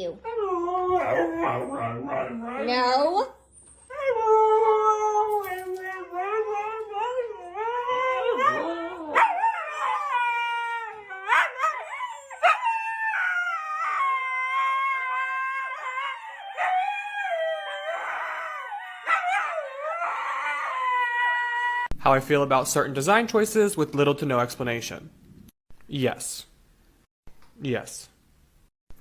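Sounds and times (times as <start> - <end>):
dog howling: 0.3 - 3.1, 3.9 - 21.9.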